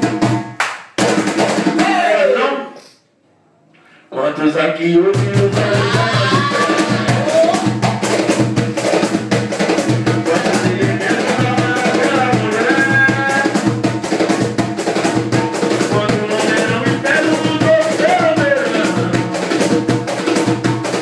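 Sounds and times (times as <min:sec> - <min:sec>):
steady drum beat: 0:00.0 - 0:02.3, 0:05.1 - 0:21.0
band playing upbeat music: 0:05.2 - 0:07.7, 0:10.1 - 0:13.6, 0:15.8 - 0:19.3.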